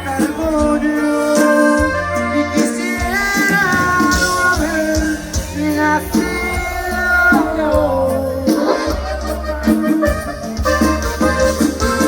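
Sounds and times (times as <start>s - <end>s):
accordion melody: 0.0s - 12.0s
bass: 0.0s - 12.0s
steady beat: 0.0s - 12.0s.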